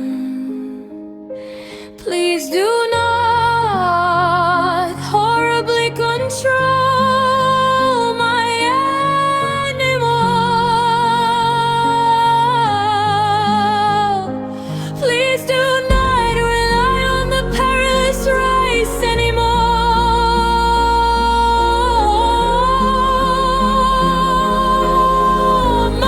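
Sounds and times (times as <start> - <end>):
solo voice singing held notes: 15.5 - 26.0
sustained low accompaniment: 15.8 - 26.0.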